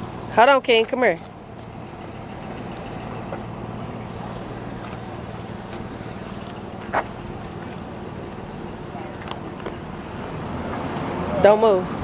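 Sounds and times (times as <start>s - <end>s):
passing vehicle tyre hiss: 0.0s - 1.4s, 4.0s - 7.0s, 7.6s - 12.0s
hum of traffic: 0.0s - 12.0s.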